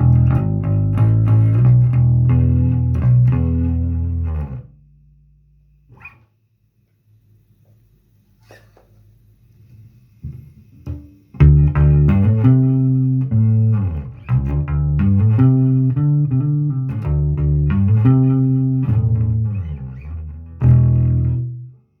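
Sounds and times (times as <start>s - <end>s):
electric bass plucked notes: 0.0s - 5.3s, 11.4s - 21.8s.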